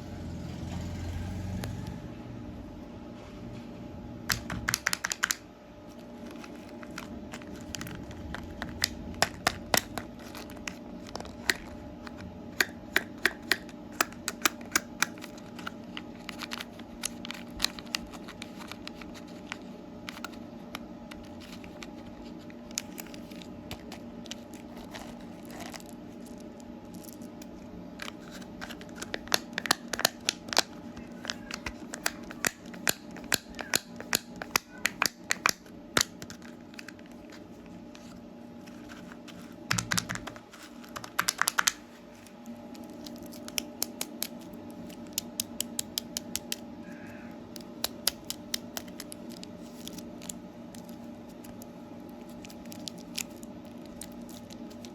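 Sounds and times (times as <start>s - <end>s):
steady low hum: 0.0s - 54.9s
candy wrappers crinkling: 4.3s - 46.7s, 47.5s - 54.9s.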